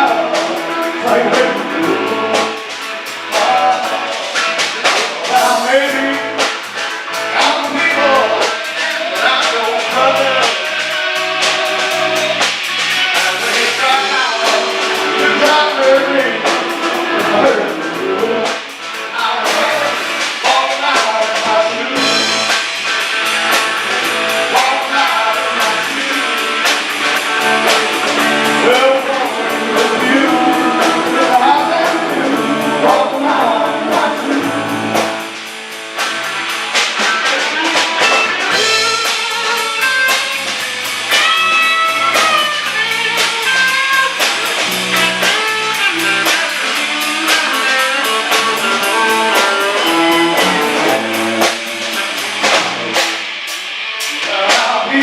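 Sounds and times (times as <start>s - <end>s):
person singing: 0.0s - 6.4s, 7.3s - 22.5s, 24.4s - 35.2s, 37.1s - 44.2s, 45.2s - 52.2s
drums: 0.0s - 55.0s
electric guitar: 0.0s - 55.0s.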